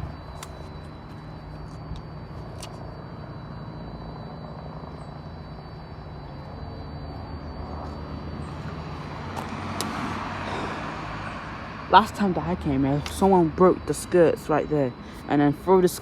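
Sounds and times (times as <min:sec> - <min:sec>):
traffic noise: 0:00.0 - 0:16.0
vehicle engine humming: 0:00.0 - 0:16.0.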